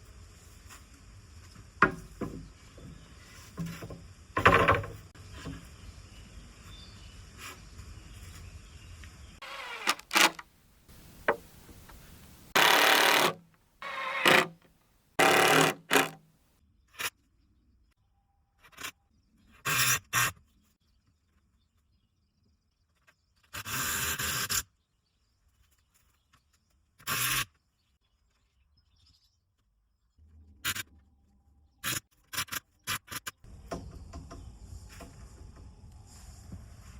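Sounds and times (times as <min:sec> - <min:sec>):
wood scraping and knocking: 0:01.8 - 0:05.6, 0:09.4 - 0:14.6, 0:15.2 - 0:16.2.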